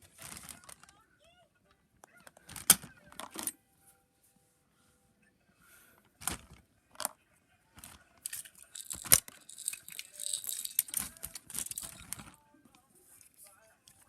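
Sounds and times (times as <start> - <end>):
toys rattling and rustling: 0.0 - 1.0, 2.2 - 3.5, 6.1 - 7.2, 7.8 - 12.4.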